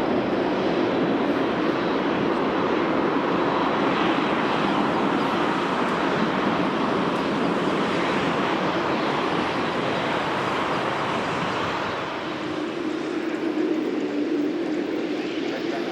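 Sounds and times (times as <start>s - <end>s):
jet engines rushing: 0.0s - 15.9s.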